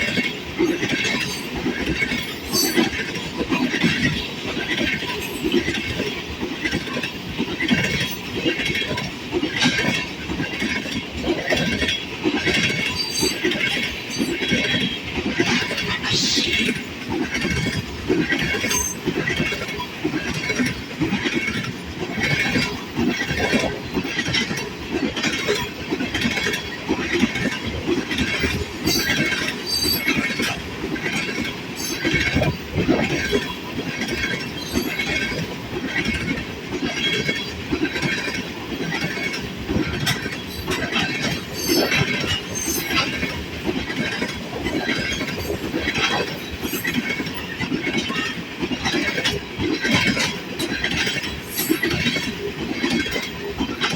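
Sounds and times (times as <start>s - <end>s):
train wheels clicking over rail joints: 0.0s - 53.9s
high wheel squeals: 12.8s - 13.5s, 28.8s - 30.3s, 40.4s - 43.2s.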